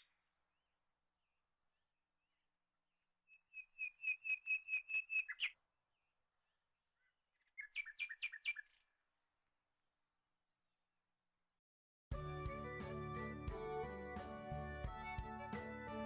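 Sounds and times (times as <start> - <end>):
bird singing rapid high chirps: 3.3 - 5.6, 7.4 - 8.8.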